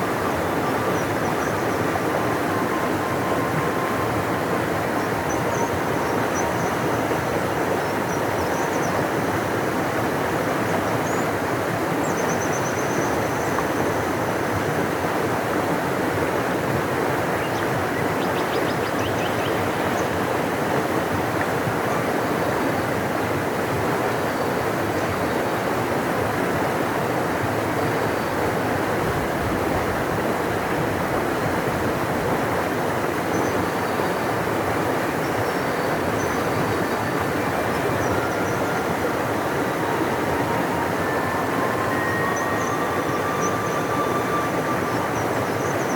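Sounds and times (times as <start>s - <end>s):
large river rushing: 0.0s - 45.9s.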